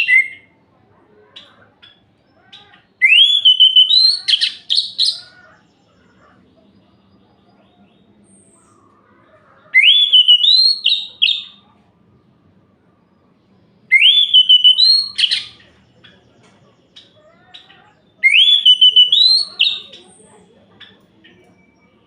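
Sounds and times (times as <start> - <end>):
thrush whistling song: 0.0 - 0.5, 3.0 - 5.3, 9.8 - 11.6, 13.9 - 15.6, 18.2 - 19.9.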